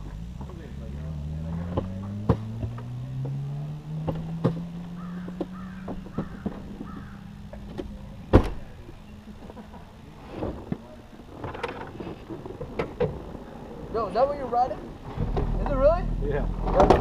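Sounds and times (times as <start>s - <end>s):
motorcycle engine: 0.0s - 17.0s
crow-like bird calls: 4.9s - 7.4s.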